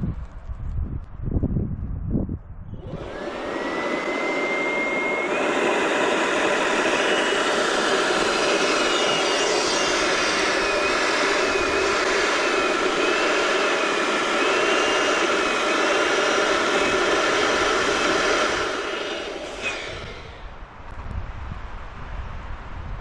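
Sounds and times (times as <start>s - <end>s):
electric balloon inflator running: 2.8s - 20.6s.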